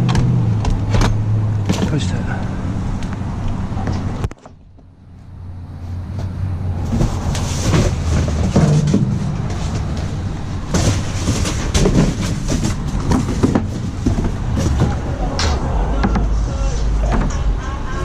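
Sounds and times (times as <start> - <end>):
steady low rumble: 0.0 - 18.0
items rattling in a dumpster: 6.8 - 16.3.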